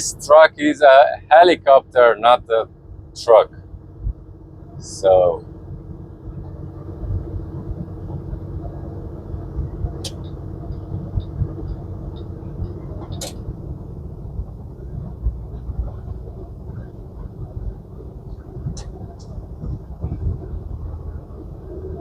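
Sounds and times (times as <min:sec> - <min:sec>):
truck diesel engine rumble: 0:00.0 - 0:22.0
faint ticking: 0:05.4 - 0:22.0.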